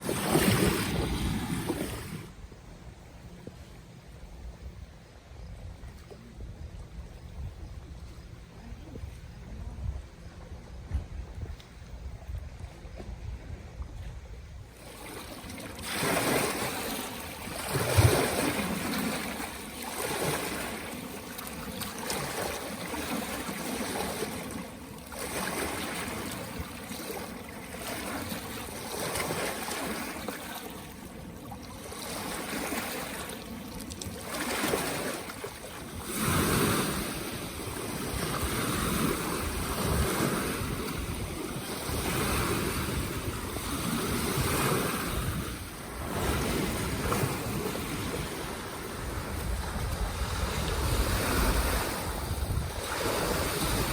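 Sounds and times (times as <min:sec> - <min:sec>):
small waves washing: 0:00.0 - 0:05.1, 0:12.7 - 0:53.9
wind buffeting microphone: 0:00.0 - 0:19.4, 0:34.5 - 0:53.9.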